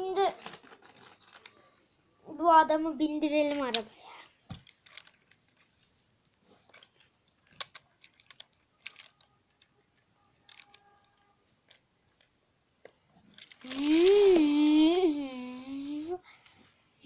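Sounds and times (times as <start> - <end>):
plastic toy bricks clicking: 4.5 - 5.7, 6.7 - 14.4.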